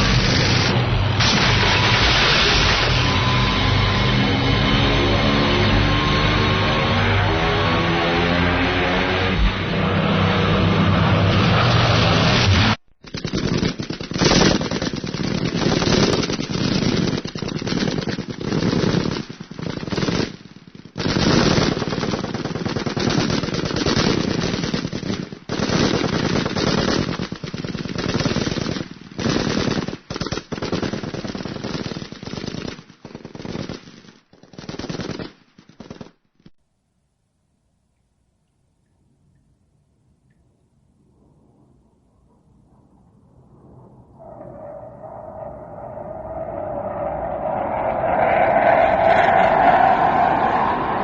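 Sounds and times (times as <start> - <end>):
machine-gun fire: 0.0 - 3.4, 12.2 - 36.2.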